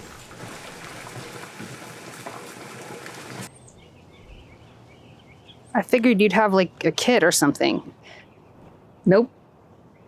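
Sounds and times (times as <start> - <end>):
food sizzling: 0.0 - 3.5
faint bird chirps: 3.5 - 5.8.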